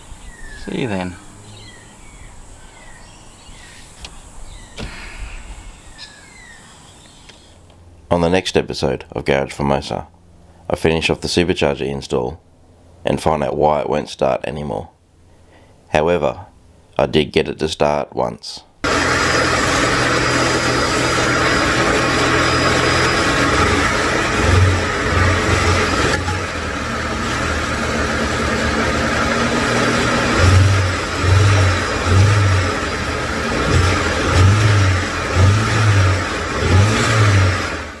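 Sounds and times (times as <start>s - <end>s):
car engine running: 0.0s - 8.1s, 18.8s - 38.0s.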